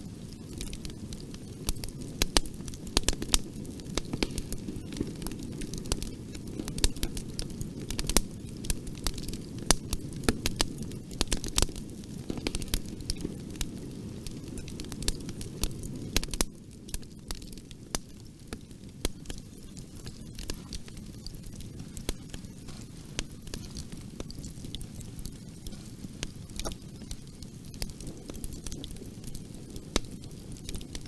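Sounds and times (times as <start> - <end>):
fire crackling and popping: 0.0 - 31.0
low rumble of flames: 0.0 - 31.0.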